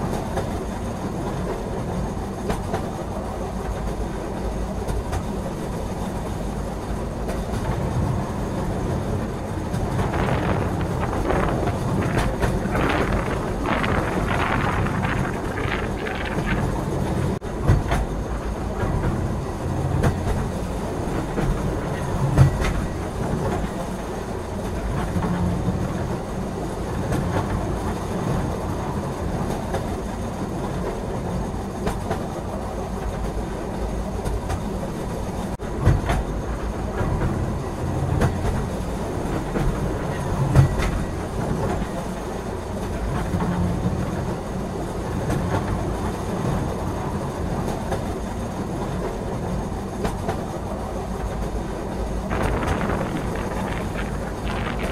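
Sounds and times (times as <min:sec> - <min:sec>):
train wheels rumbling on rails: 0:00.0 - 0:54.9
wheels knocking on track: 0:09.1 - 0:19.3, 0:51.3 - 0:54.9.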